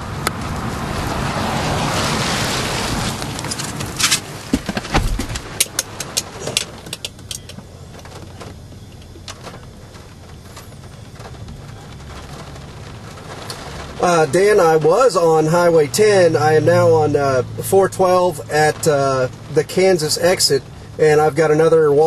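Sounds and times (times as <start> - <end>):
steady rumble: 0.0 - 22.0
wind rushing in vehicle: 0.0 - 22.0
sharp clicks and knocks: 3.4 - 12.5.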